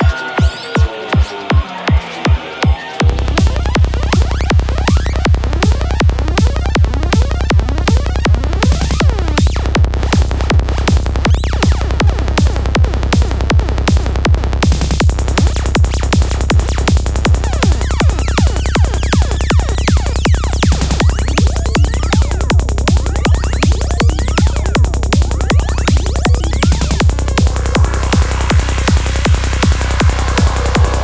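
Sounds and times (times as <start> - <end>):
kick drum: 0.0 - 31.0
rolling bassline: 3.0 - 31.0
hi-hats: 15.0 - 31.0
rising synth sweeps: 23.3 - 31.0.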